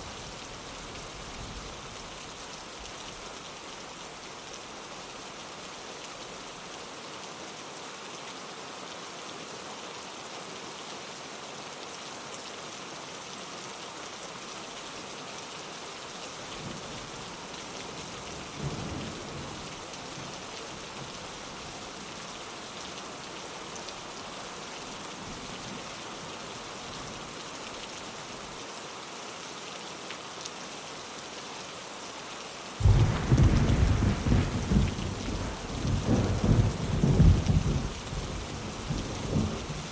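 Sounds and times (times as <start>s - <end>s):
rain on a window: 0.0s - 39.9s
loud thunderclap: 32.8s - 37.9s
distant thunder: 32.8s - 39.8s.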